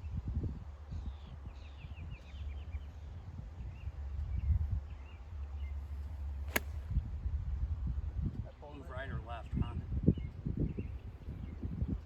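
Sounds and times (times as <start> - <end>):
golf club striking ball: 6.5 - 6.9.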